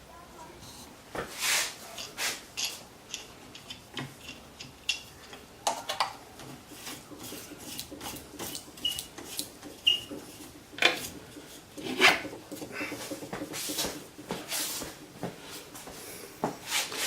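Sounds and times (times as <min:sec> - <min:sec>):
wooden dowel rubbed by hand: 0:01.3 - 0:02.4, 0:10.2 - 0:15.7, 0:16.6 - 0:17.0.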